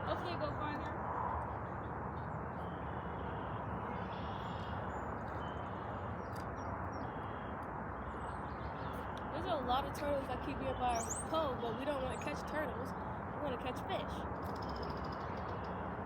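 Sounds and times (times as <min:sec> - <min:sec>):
outdoor background noise: 0:00.0 - 0:16.0
faint bird chirps: 0:14.4 - 0:15.9.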